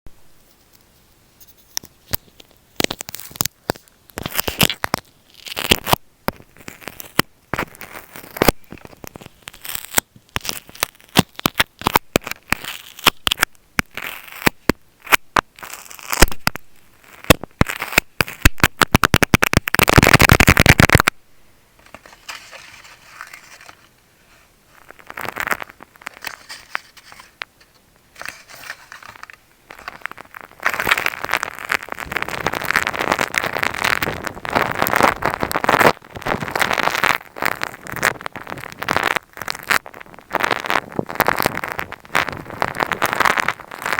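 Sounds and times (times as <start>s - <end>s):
dense crackle: 0.4s - 43.9s
scratchy rubbing: 21.8s - 39.8s.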